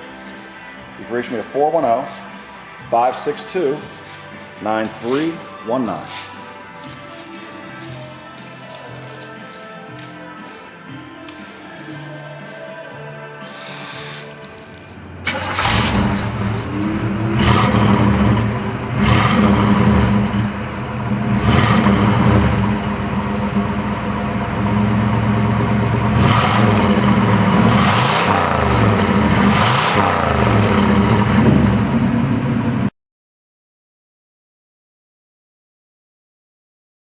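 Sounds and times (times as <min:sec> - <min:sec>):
car engine revving: 0:15.2 - 0:32.9.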